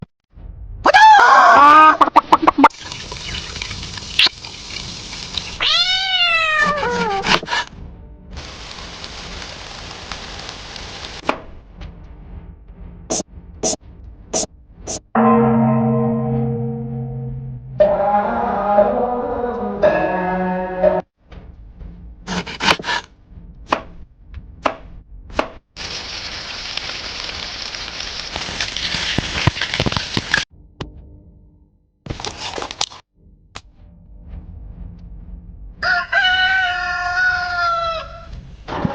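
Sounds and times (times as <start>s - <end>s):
cat meowing: 5.6s - 7.3s
steady hiss: 8.4s - 11.2s
knife chopping on cutting board: 22.3s - 23.0s.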